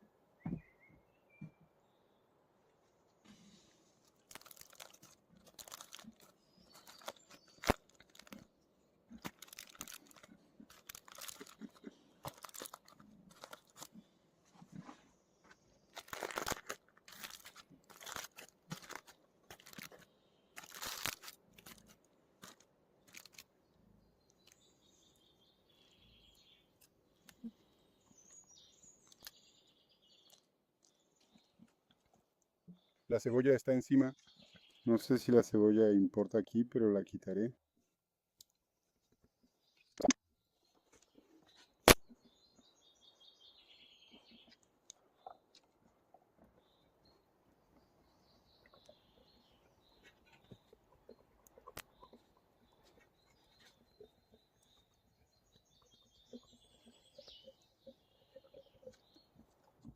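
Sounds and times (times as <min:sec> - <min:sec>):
birds chirping faintly: 0:00.0 - 0:59.9
crinkling handling noise: 0:03.2 - 0:24.7.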